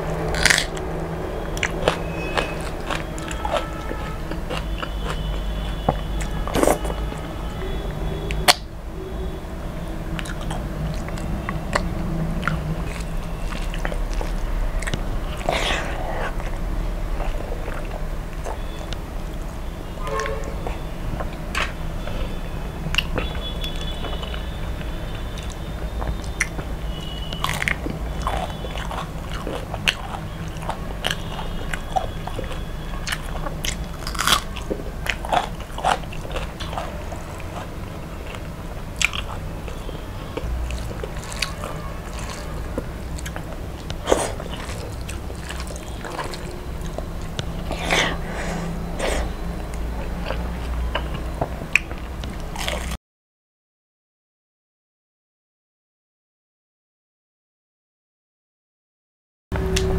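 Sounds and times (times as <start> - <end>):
chewing and crunching fried food: 0.0 - 53.0
wet mouth clicks and smacks: 20.6 - 21.8, 27.3 - 30.0, 38.3 - 39.8, 49.0 - 53.0.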